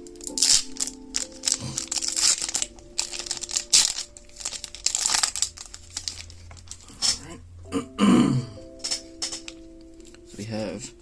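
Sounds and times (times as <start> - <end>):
foil wrapper crinkling and tearing: 0.2 - 7.0.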